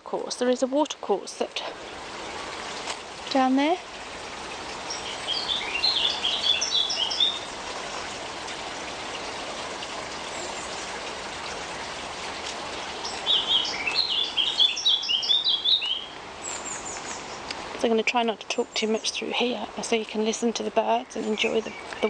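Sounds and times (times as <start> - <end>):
steady background hiss: 0.0 - 22.0
songbird chirping: 4.8 - 8.1, 12.5 - 22.0.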